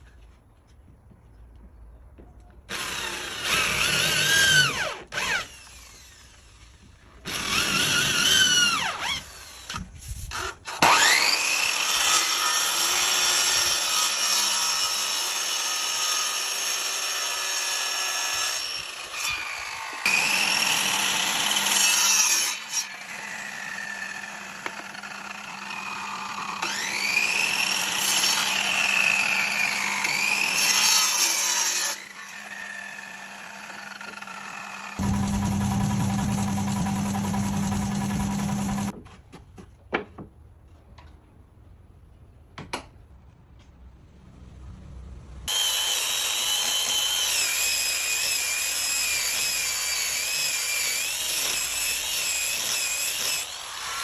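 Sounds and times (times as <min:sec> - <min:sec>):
power tool cutting wood: 0:02.7 - 0:39.0, 0:45.5 - 0:54.0.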